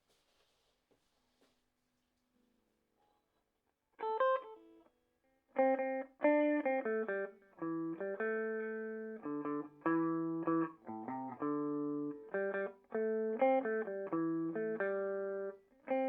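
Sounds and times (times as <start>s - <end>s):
clean electric guitar notes: 5.6s - 16.0s.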